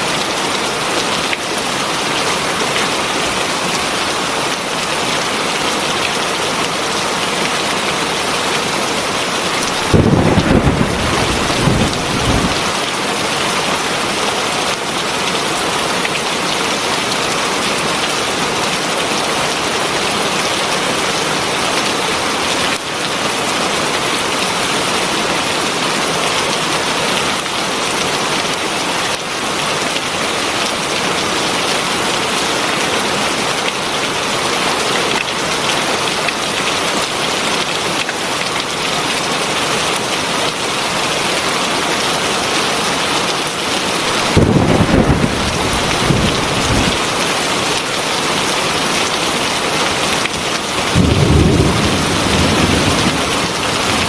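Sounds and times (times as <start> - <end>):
heavy rain falling: 0.0 - 54.0
low thunder rumble: 9.7 - 12.7, 44.2 - 47.0, 50.9 - 54.0.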